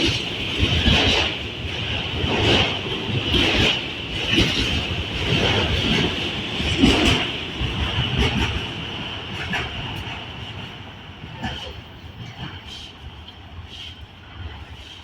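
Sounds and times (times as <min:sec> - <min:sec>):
freight train cars rolling: 0:00.0 - 0:15.0.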